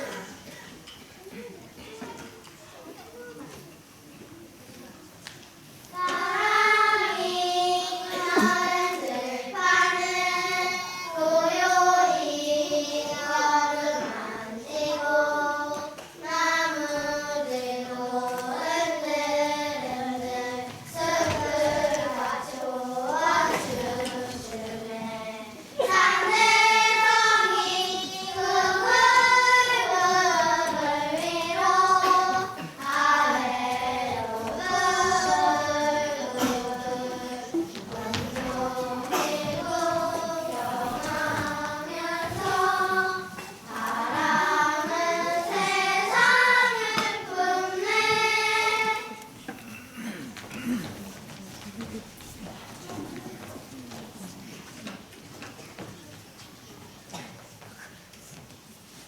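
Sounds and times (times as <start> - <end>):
children singing in unison: 5.9 - 50.8.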